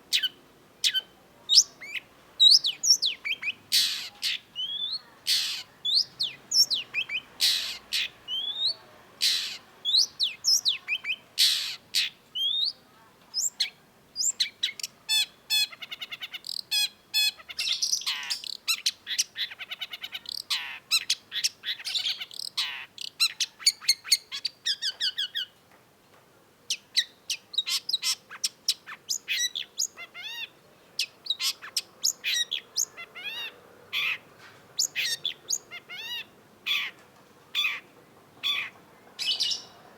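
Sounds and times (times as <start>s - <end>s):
bird singing whistles and trills: 0.2s - 5.0s, 5.9s - 8.8s, 9.9s - 11.2s, 12.4s - 12.8s, 38.6s - 39.8s.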